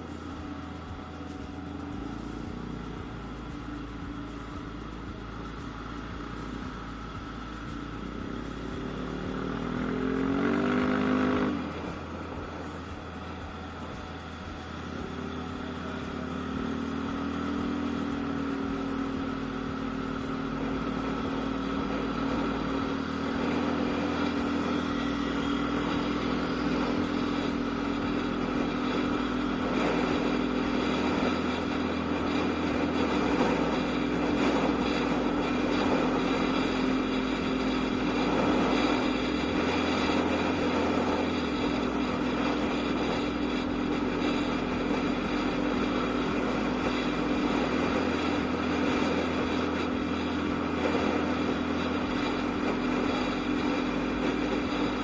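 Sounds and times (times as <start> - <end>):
scooter engine running: 0.0 - 55.0.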